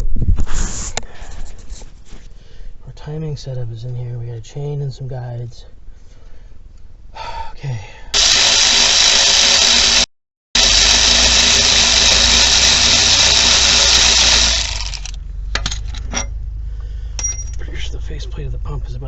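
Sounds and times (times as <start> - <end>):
power drill running: 8.2 - 15.2.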